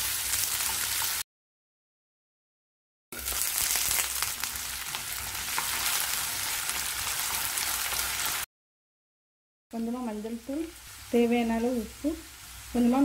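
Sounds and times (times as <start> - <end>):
potatoes sizzling in oil: 0.0 - 1.2, 3.2 - 8.5, 9.8 - 13.0.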